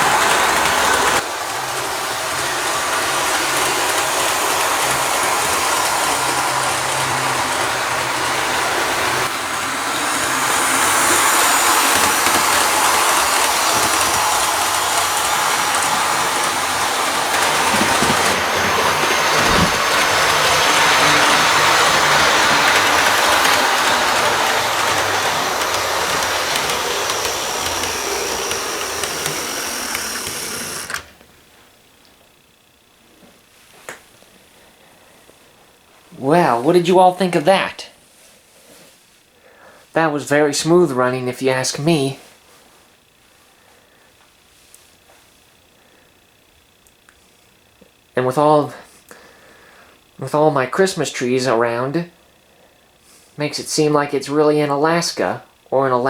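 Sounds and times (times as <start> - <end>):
model train motor whirring: 0.0 - 31.2
wheels clicking over rail joints: 0.0 - 31.2.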